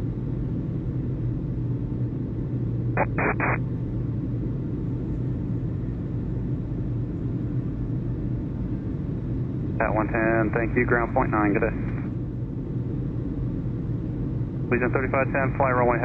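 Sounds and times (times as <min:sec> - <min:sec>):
low rumble and hum: 0:00.0 - 0:16.0
radio static bursts: 0:03.0 - 0:03.6.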